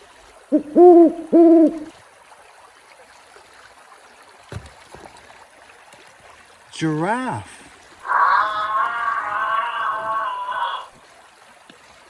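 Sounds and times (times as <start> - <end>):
owl hooting: 0.5 - 1.9, 8.1 - 10.9.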